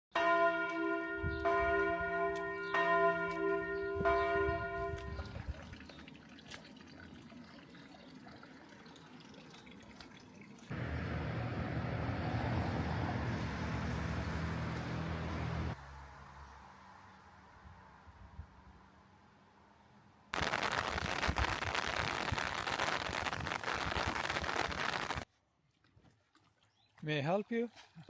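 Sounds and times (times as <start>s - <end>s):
bell ringing: 0.2s - 5.2s.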